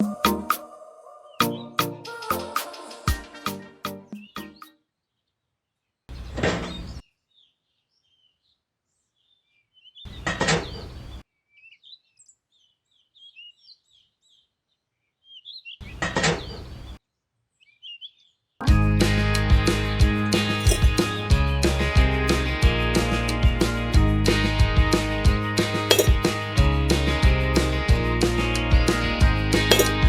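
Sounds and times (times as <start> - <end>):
small birds chirping: 3.9 - 18.6.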